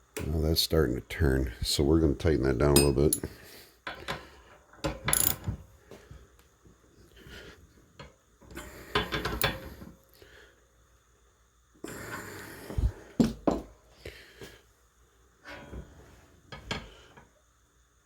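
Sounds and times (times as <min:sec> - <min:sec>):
steel tools clinking: 0:02.7 - 0:03.3
heavy breathing: 0:11.8 - 0:13.3.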